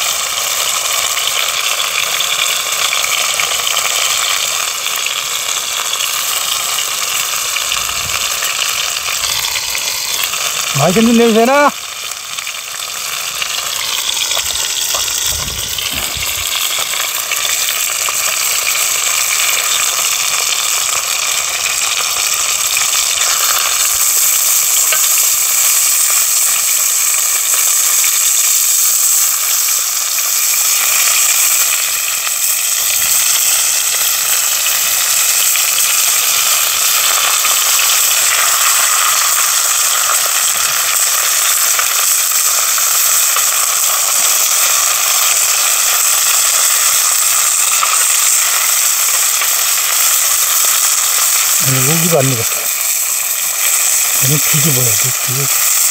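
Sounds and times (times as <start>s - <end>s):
fish frying in hot oil: 0.0s - 55.9s.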